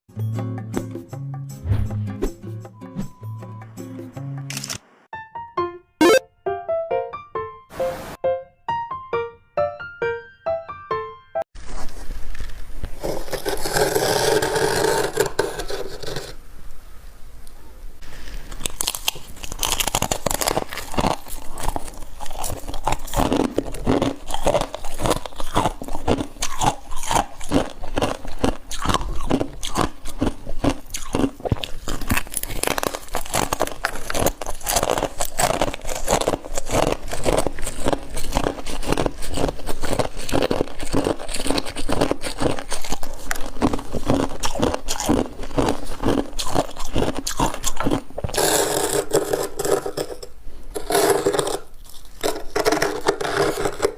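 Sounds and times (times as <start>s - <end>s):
frost crunching being chewed: 11.6s - 16.4s, 18.0s - 53.9s.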